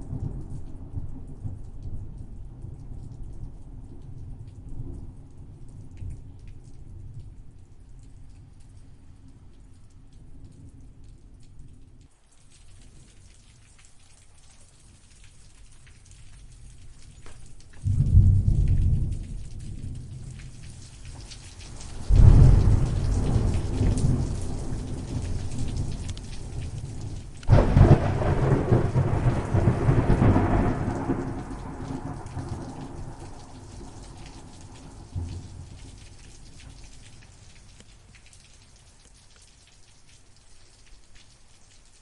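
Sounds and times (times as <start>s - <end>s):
rain pattering: 0.0s - 42.0s
thunder rolling: 17.8s - 34.2s.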